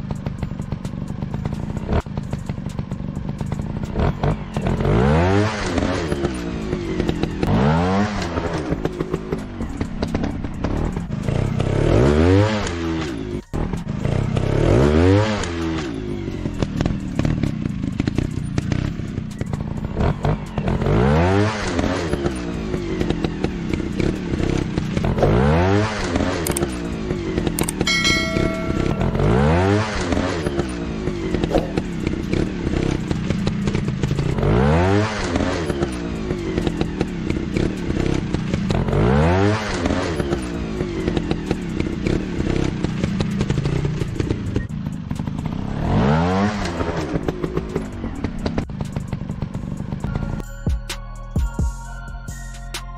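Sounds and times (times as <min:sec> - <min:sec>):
motorcycle engine revving: 0:00.0 - 0:50.4
short bright chime: 0:27.9 - 0:29.8.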